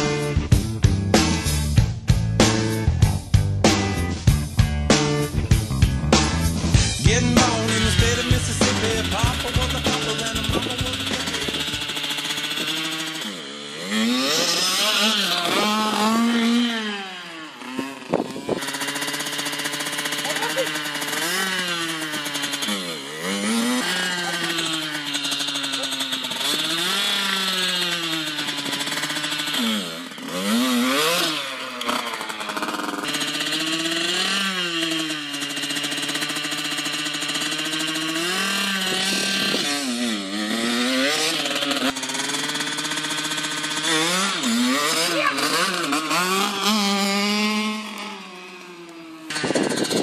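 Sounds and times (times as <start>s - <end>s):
motocross bike engine revving: 0.0s - 50.0s.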